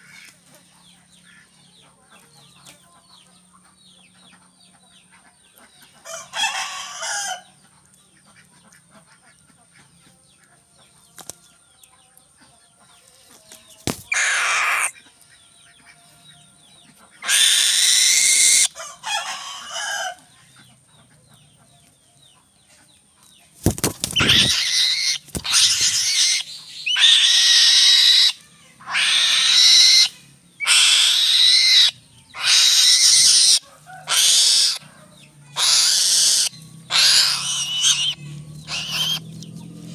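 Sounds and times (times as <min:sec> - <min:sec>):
bird screeching calls: 0:14.1 - 0:15.0, 0:17.2 - 0:19.6, 0:24.0 - 0:34.8, 0:35.6 - 0:39.4.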